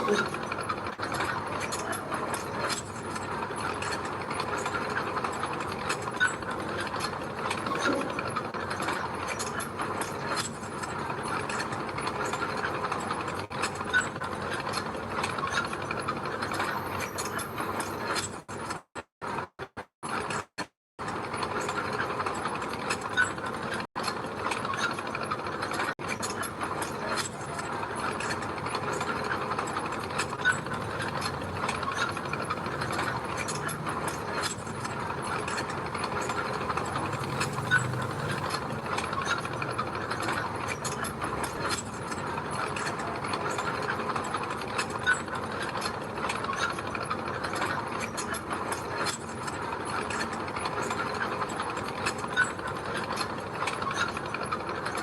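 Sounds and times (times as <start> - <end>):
bulldozer engine: 0.0 - 18.0, 24.7 - 46.7
crawler tracks clattering: 21.0 - 55.0.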